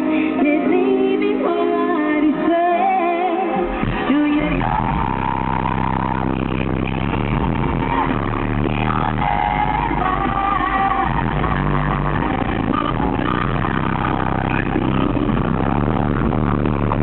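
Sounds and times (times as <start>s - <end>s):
pop song with singing: 0.0s - 17.0s
heavy bass: 3.7s - 17.0s.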